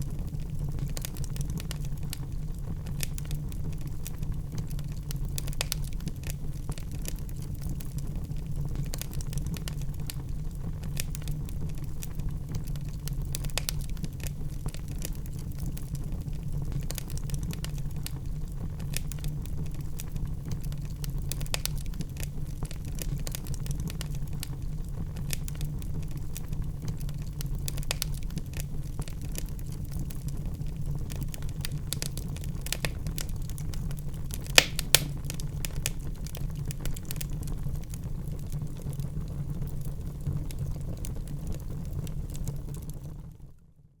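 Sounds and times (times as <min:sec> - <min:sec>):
wood fire crackling and popping: 0:00.0 - 0:43.6.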